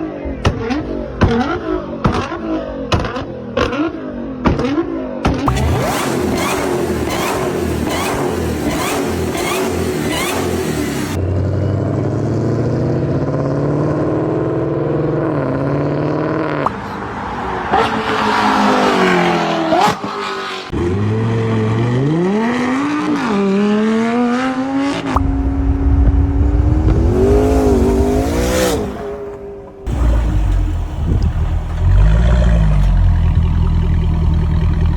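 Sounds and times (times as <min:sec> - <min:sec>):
car engines revving: 0:00.0 - 0:34.9.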